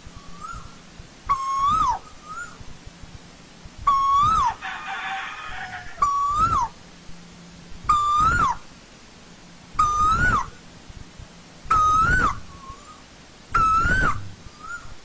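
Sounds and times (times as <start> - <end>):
bird whistled call: 0.1 - 2.6, 3.9 - 6.7, 7.9 - 8.6, 9.8 - 10.6, 11.7 - 13.0, 13.6 - 15.0.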